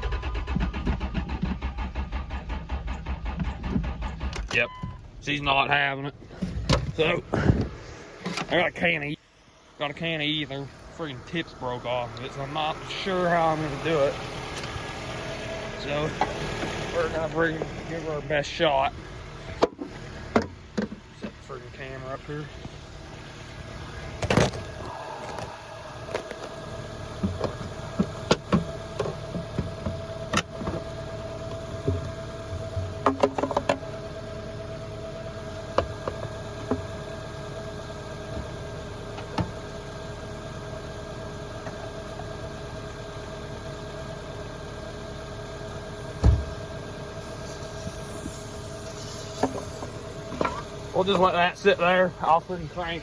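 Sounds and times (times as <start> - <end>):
hands clicking and rattling on engine: 0.0 - 5.0, 24.2 - 33.9
steady mechanical hum: 0.0 - 53.0.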